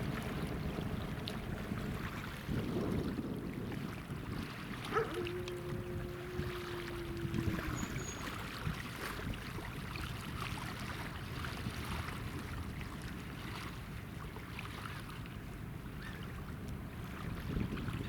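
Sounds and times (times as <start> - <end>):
wind noise: 0.0 - 12.8, 17.1 - 18.0
water splashing: 0.0 - 15.3
ship engine rumble: 0.0 - 18.0.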